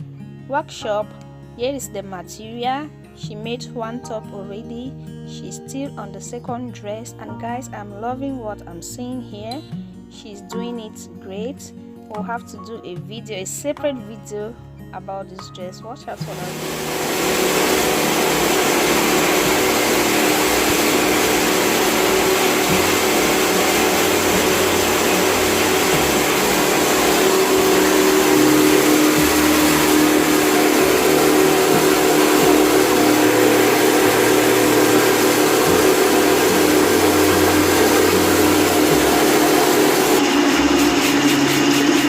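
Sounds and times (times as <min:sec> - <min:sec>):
sewing machine motor whine: 0:16.2 - 0:42.0.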